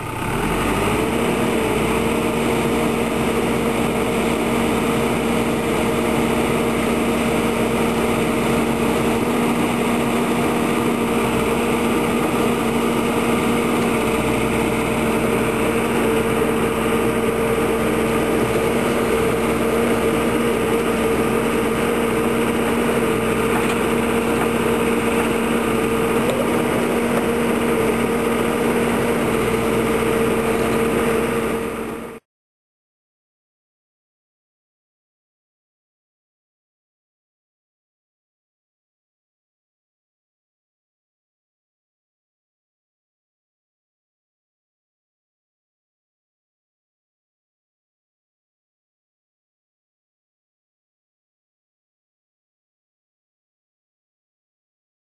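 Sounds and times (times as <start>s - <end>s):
diesel engine idling: 0.0s - 32.2s.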